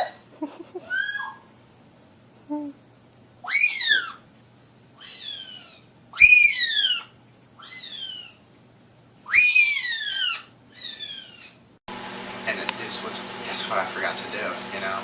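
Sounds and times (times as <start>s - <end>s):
parrot whistled calls: 3.4s - 4.2s, 5.0s - 8.4s, 9.3s - 11.5s.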